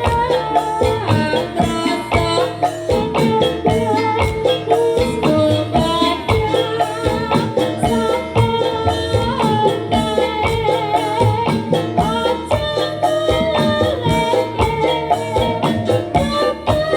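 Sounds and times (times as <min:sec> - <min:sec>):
dangdut music: 0:00.0 - 0:16.9
drums beating: 0:00.0 - 0:16.9
rattling percussion: 0:00.0 - 0:16.9.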